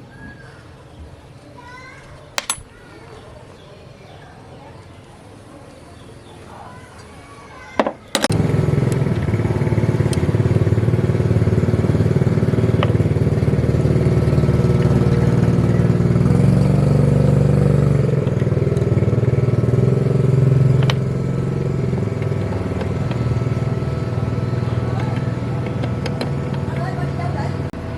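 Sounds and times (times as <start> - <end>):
machine motor pulsing rapidly: 8.3 - 27.9.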